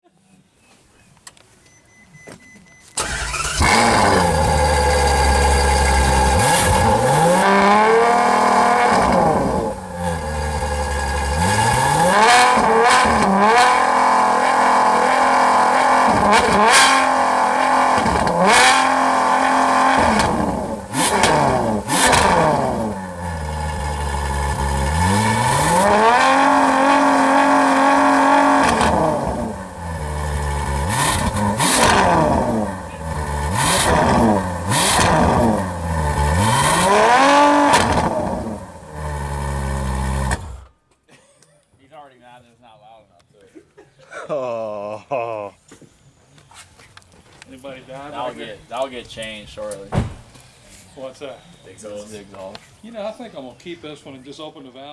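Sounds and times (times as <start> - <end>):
car engine idling and revving: 3.0 - 40.8
exhaust cracks: 3.0 - 40.8.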